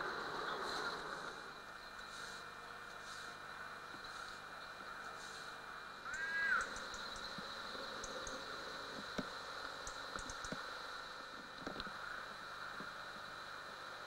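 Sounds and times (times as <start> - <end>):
steady background hiss: 0.0 - 14.0
bird call: 6.1 - 7.2.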